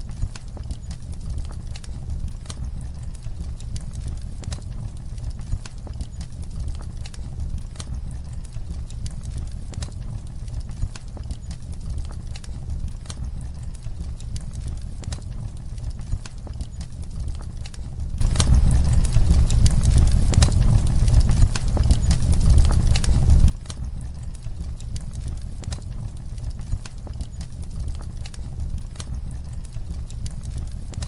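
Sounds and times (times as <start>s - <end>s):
fire crackling and popping: 0.0s - 31.0s
low fire rumble: 0.0s - 31.0s.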